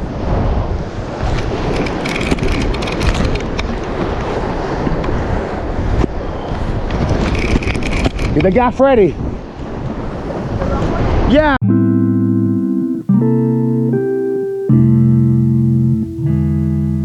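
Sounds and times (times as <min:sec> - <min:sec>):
ocean surf: 0:00.0 - 0:11.6
wind buffeting microphone: 0:00.0 - 0:11.6.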